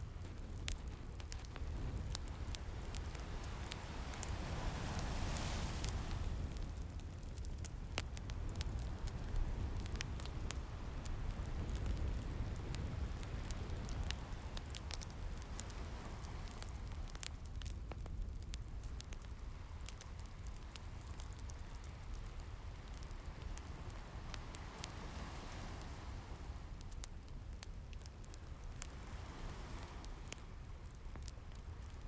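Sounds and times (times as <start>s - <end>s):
wood fire crackling: 0.0s - 32.0s
ocean waves: 1.3s - 7.3s, 12.8s - 17.2s, 19.6s - 26.8s, 28.4s - 30.6s.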